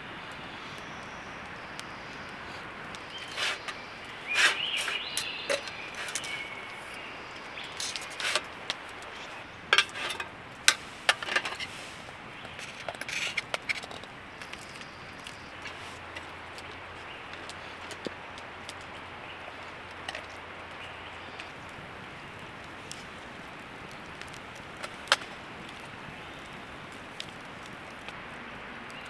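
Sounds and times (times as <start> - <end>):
steady background hiss: 0.0 - 29.0
metal dishes clinking: 3.1 - 7.0, 7.7 - 11.7.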